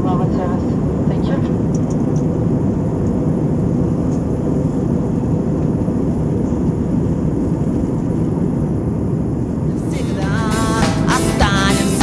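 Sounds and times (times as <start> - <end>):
airliner cabin roar: 0.0 - 12.0.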